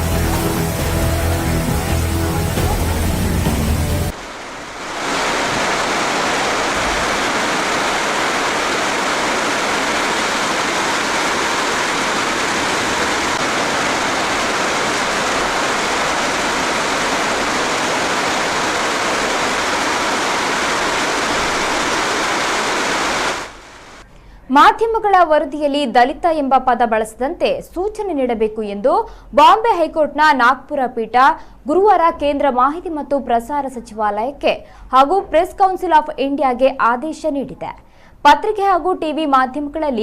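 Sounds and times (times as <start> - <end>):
rushing water: 0.0 - 24.0.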